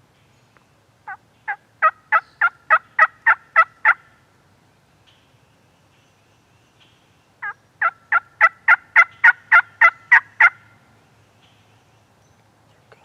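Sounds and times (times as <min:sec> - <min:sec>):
turkey yelping: 0:01.1 - 0:04.1, 0:07.4 - 0:10.7.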